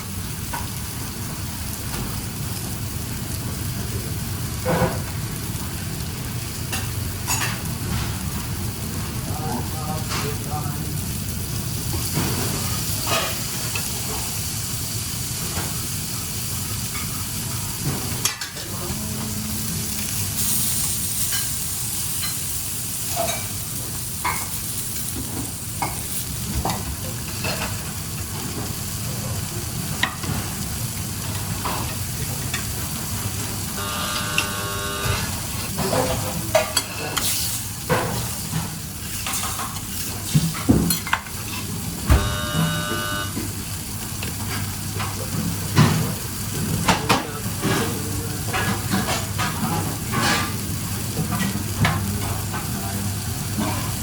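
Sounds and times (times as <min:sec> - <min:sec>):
food sizzling in a pan: 0:00.0 - 0:54.0
cooking utensil clicks and scrapes: 0:35.6 - 0:41.7.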